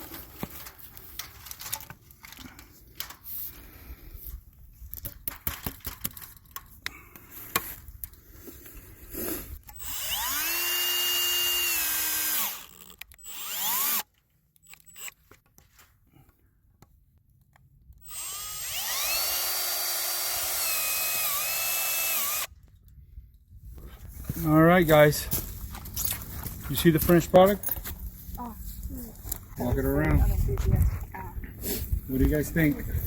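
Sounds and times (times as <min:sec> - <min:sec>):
handling knocks and clicks: 0:04.8 - 0:06.9
power drill driving screw: 0:09.6 - 0:15.2, 0:18.0 - 0:22.5.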